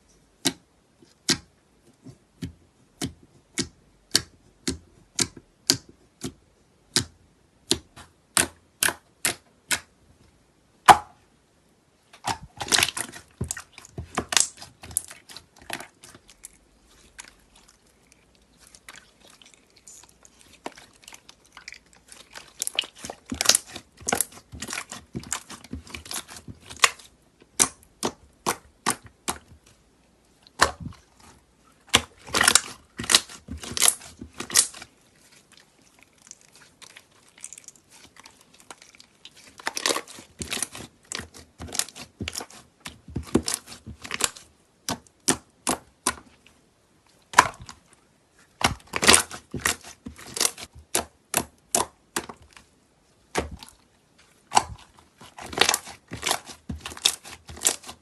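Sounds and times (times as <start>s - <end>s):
slime crackling: 12.2s - 46.4s, 53.3s - 58.0s
crunchy slime popping: 31.9s - 34.8s.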